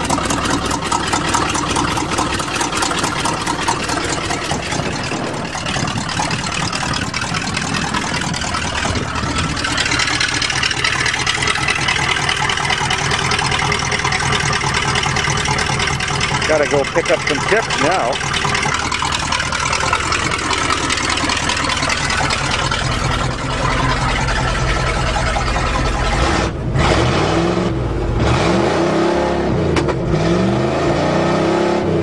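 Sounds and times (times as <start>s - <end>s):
exhaust leak ticking: 0.0s - 26.9s
truck engine running: 0.0s - 32.0s.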